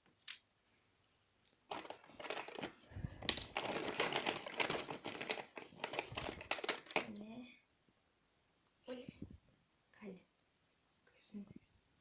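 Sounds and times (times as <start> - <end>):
plastic items clicking and rattling: 1.7 - 7.2.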